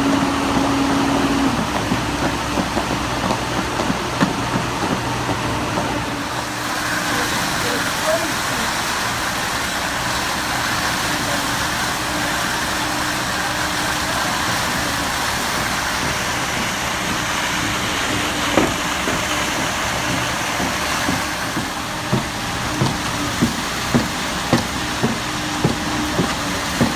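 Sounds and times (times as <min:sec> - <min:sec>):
diesel engine running: 0:00.0 - 0:26.9
sharp knocks: 0:18.1 - 0:26.9.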